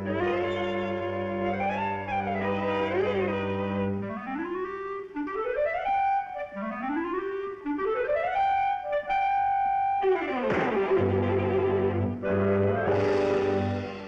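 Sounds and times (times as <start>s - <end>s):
clarinet glissandos: 0.0s - 14.0s.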